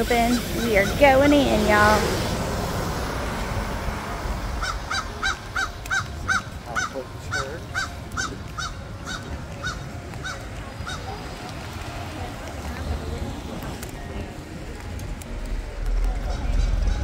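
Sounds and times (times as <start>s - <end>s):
bird squeaky calls: 4.6s - 11.2s.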